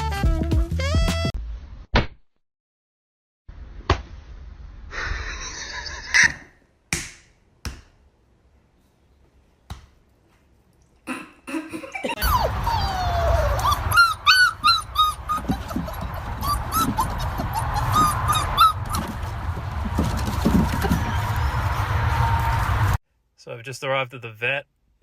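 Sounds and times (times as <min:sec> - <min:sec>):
dog whining: 0:12.2 - 0:19.2.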